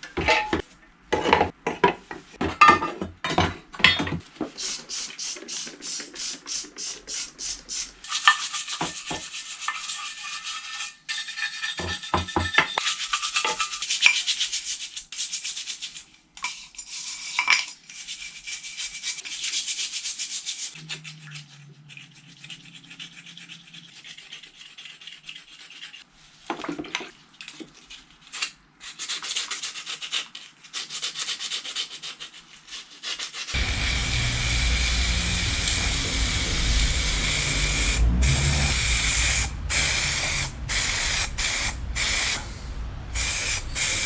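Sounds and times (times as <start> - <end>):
abrasive scrubbing of rust: 7.9 - 14.7, 18.0 - 26.1, 33.5 - 44.0
brief low hum: 33.6 - 44.0.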